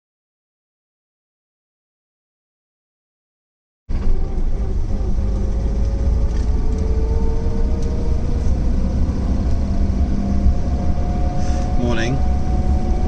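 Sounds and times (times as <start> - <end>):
car engine running: 3.9 - 13.0.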